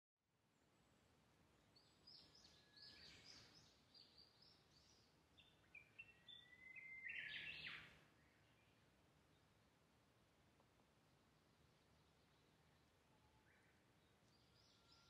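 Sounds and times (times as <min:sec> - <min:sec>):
songbird chirping and whistling: 0:05.7 - 0:07.9.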